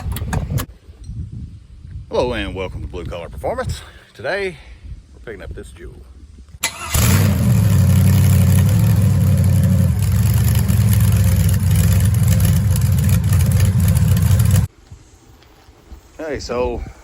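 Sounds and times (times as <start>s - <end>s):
large vehicle engine running: 6.9s - 14.7s.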